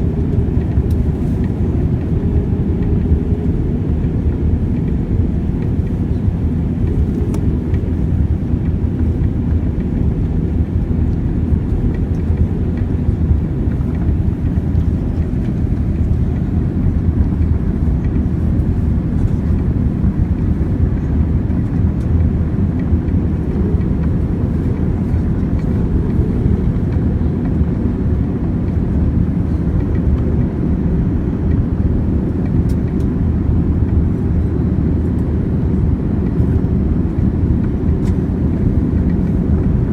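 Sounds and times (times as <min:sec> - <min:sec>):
airliner cabin engine and airflow noise: 0:00.0 - 0:39.9.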